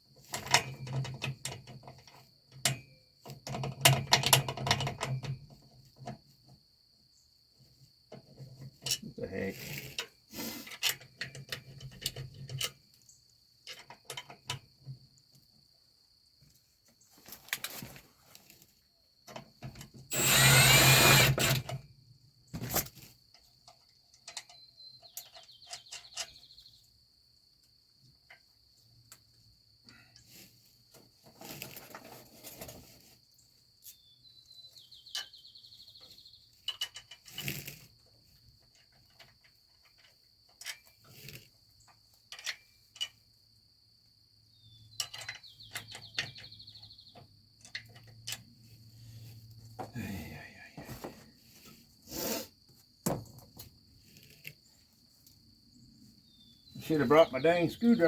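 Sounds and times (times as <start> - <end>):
crickets chirring: 0.0 - 58.0
power drill spinning: 20.1 - 21.8.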